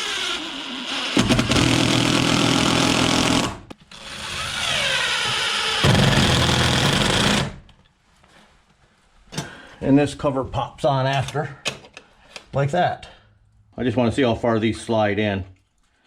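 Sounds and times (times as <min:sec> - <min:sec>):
power drill driving screws: 0:00.0 - 0:07.6.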